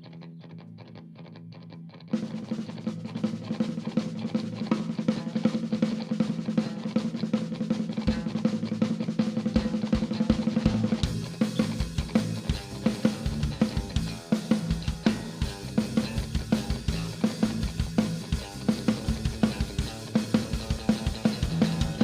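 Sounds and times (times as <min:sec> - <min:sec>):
picked guitar: 0:00.0 - 0:22.0
rock band playing: 0:02.1 - 0:22.0
heavy bass drum hits: 0:11.0 - 0:22.0.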